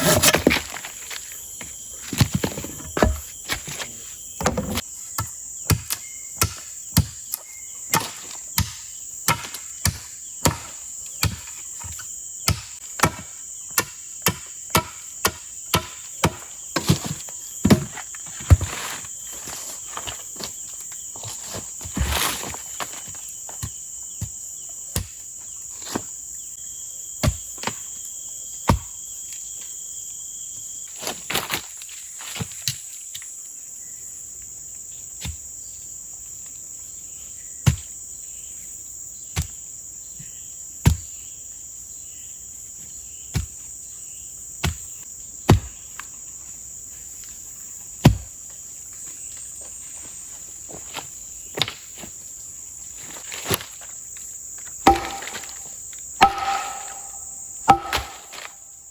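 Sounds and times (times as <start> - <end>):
forest insects droning: 0.0 - 58.9
sharp knocks: 54.9 - 58.5.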